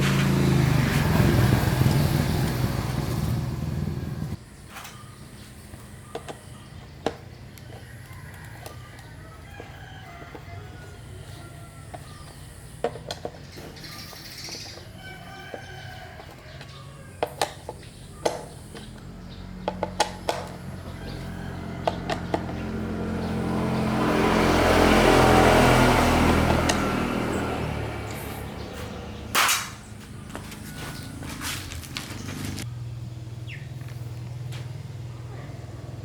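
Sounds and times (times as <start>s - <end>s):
birds chirping: 0.0s - 36.0s
engine: 0.0s - 36.0s.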